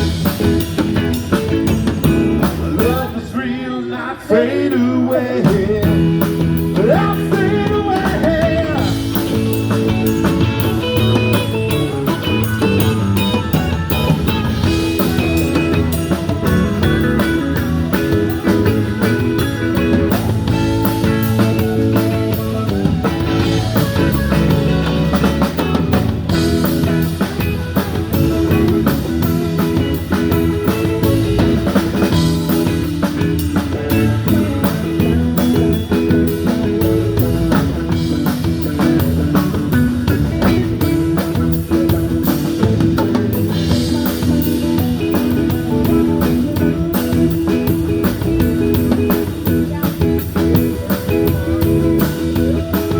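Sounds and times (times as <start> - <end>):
drum kit beat: 0.0 - 3.2, 5.4 - 52.9
electric guitar: 0.0 - 52.9.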